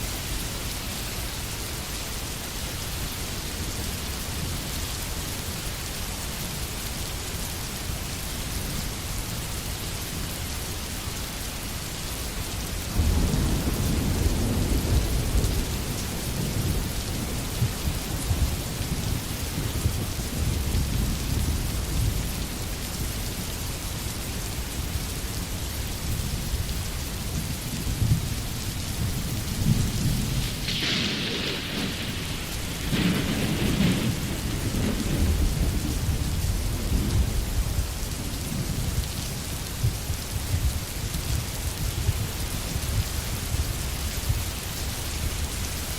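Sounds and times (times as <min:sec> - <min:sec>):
rain falling in forest: 0:00.0 - 0:45.9
thunder rumbling: 0:12.9 - 0:22.6, 0:27.5 - 0:40.6.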